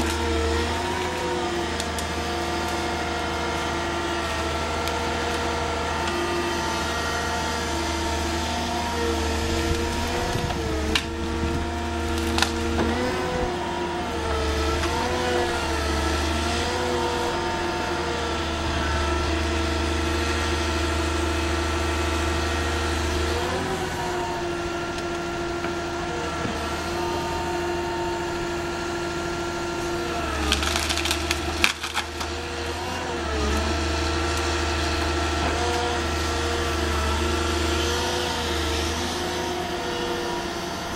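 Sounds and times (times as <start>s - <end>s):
wood cracking and splintering: 0.0s - 20.3s, 28.5s - 40.0s
diesel engine and hydraulics running: 0.0s - 40.9s.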